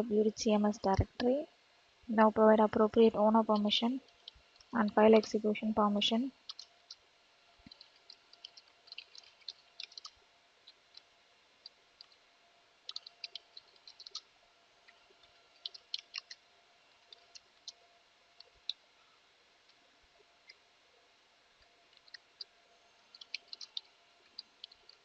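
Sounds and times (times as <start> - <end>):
faint keyboard typing: 6.1 - 12.2, 12.8 - 17.8, 21.6 - 25.0.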